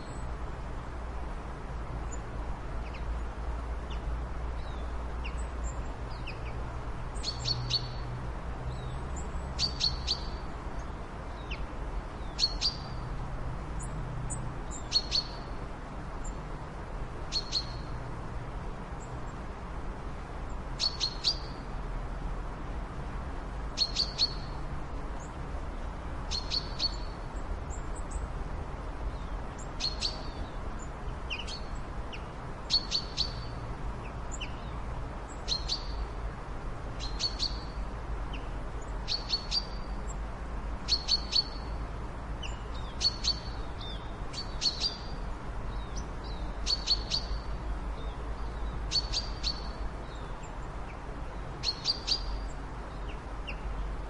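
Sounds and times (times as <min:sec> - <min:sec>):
low background noise: 0:00.0 - 0:54.0
bird chirping: 0:07.2 - 0:08.1, 0:08.7 - 0:11.6, 0:12.2 - 0:13.0, 0:13.8 - 0:15.6, 0:17.3 - 0:17.9, 0:20.8 - 0:21.6, 0:23.8 - 0:24.6, 0:26.3 - 0:28.2, 0:29.1 - 0:30.6, 0:31.3 - 0:33.6, 0:34.3 - 0:36.0, 0:37.0 - 0:40.0, 0:40.8 - 0:41.8, 0:42.4 - 0:51.0, 0:51.6 - 0:53.8.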